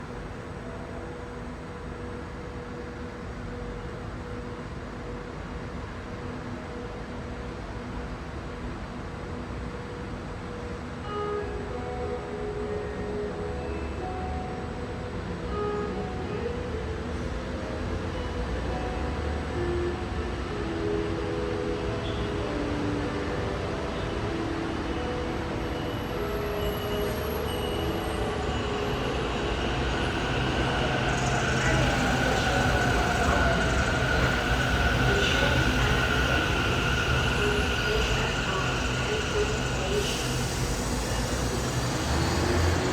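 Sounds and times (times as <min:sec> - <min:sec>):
train rumble: 0:13.4 - 0:42.9.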